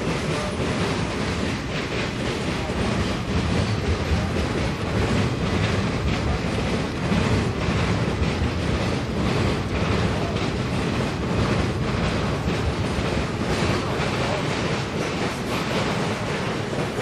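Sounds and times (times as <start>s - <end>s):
freight train wheels rattling: 0.0s - 17.0s.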